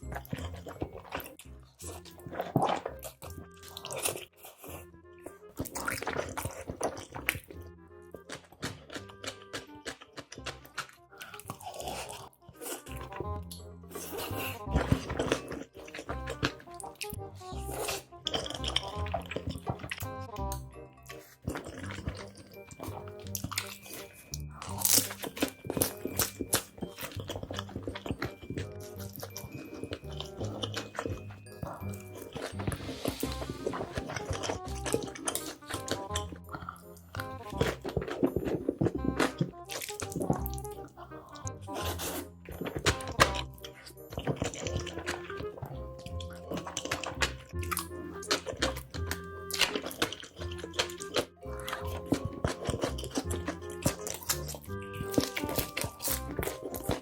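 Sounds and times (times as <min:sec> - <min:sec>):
background music: 0:00.0 - 0:57.0
noodle chewing and mouth sounds: 0:00.0 - 0:57.0
loud slurp: 0:31.6 - 0:36.7.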